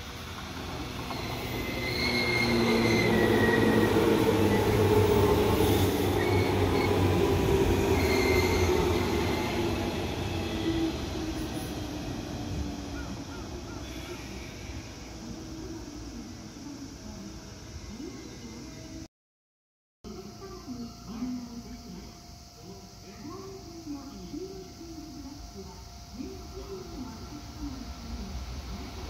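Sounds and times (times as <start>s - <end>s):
electric train passing: 0.0s - 19.1s, 20.1s - 29.0s
short high-pitched squeals: 1.1s - 4.8s, 7.8s - 11.0s.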